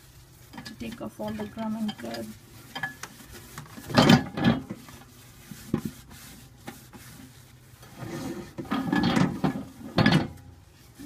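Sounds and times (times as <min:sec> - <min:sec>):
paper towel rubbing: 0:00.0 - 0:11.0
loud scrapes: 0:03.4 - 0:10.0.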